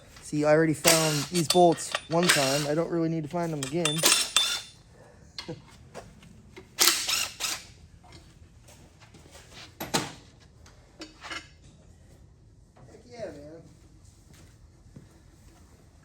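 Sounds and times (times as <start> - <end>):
metal parts clicking and clinking: 0.8 - 2.8, 3.4 - 4.8.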